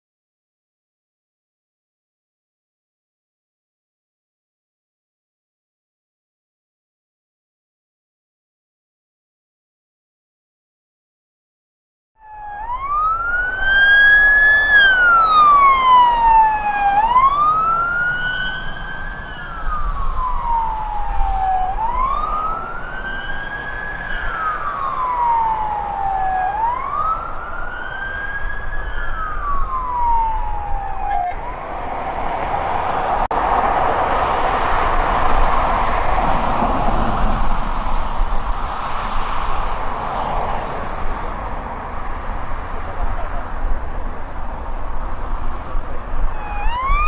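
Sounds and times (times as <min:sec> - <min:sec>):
emergency vehicle siren wailing: 0:12.2 - 0:42.0, 0:45.4 - 0:47.0
rush of traffic and engines: 0:12.2 - 0:47.0.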